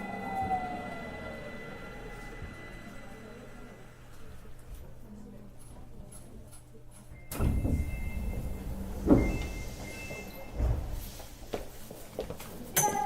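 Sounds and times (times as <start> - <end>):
sliding doors thudding shut: 7.3 - 11.6.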